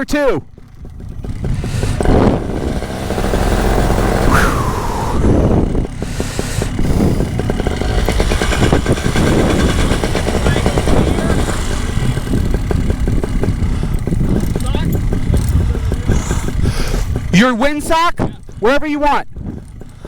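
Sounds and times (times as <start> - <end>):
two-stroke engine running: 0.0 - 20.0
short falling whine: 1.9 - 5.8.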